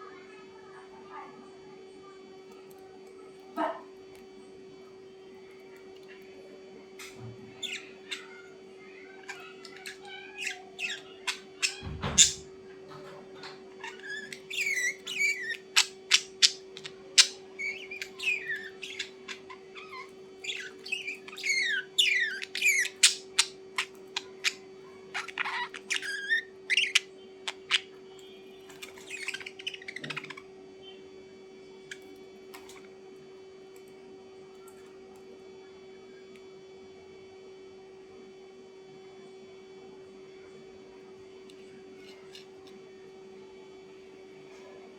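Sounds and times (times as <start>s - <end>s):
steady low hum: 0.0s - 44.9s
bird chirping and squawking: 7.5s - 12.5s, 13.4s - 28.0s, 28.6s - 30.4s.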